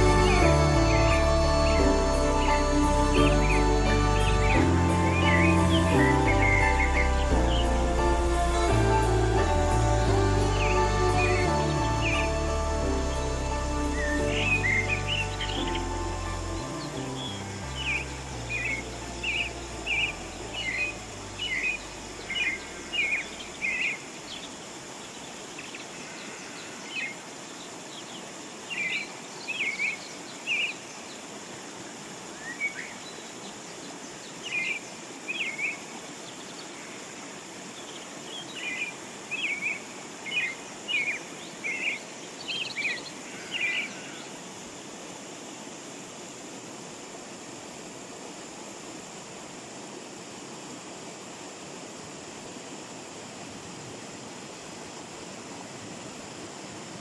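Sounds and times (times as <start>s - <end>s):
small birds chirping: 0.0s - 26.6s
steady outdoor hiss: 0.0s - 57.0s.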